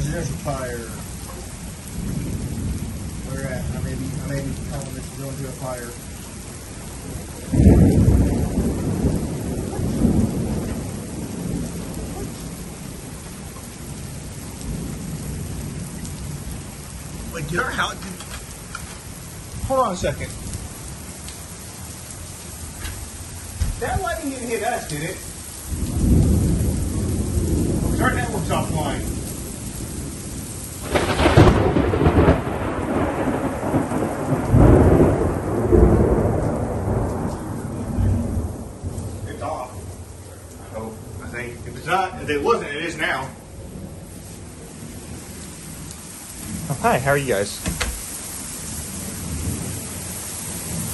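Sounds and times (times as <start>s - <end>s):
steady rain: 0.0s - 50.9s
thunder rumbling: 0.0s - 50.9s.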